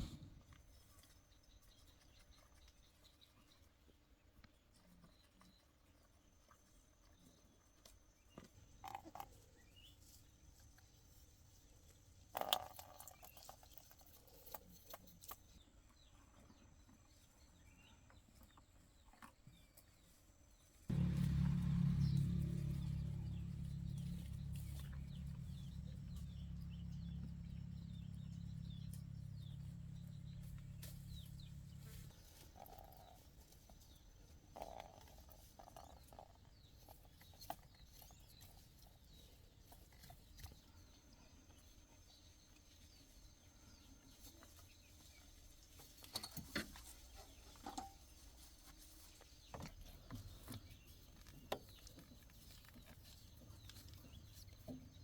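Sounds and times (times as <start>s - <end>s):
low motor drone: 20.9s - 32.2s.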